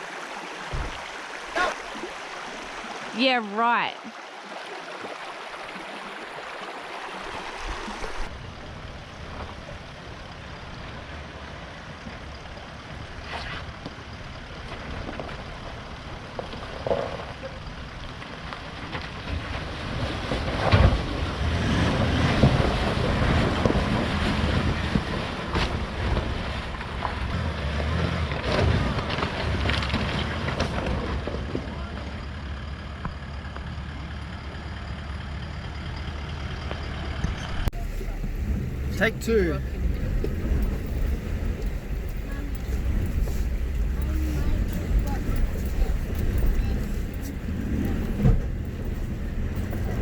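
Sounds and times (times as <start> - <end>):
knocks and bumps: 0.7 - 1.1
vehicle rumble on rough track: 7.0 - 50.0.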